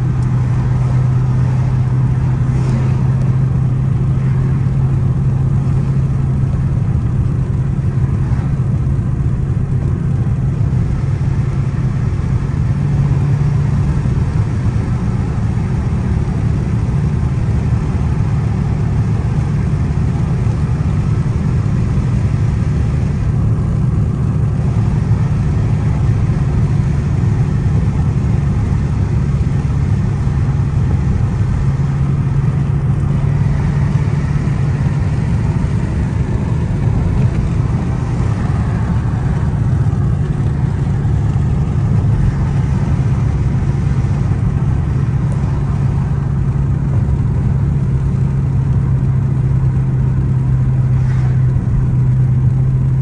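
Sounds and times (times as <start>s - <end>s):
car engine drone: 0.0s - 53.0s
road noise: 0.0s - 53.0s.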